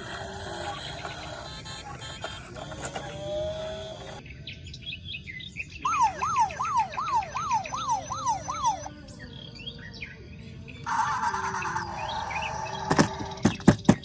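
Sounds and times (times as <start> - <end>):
high bird-like chirps: 5.8 - 8.9, 10.9 - 13.5
electronic siren-like warble: 5.9 - 8.9, 10.9 - 13.4.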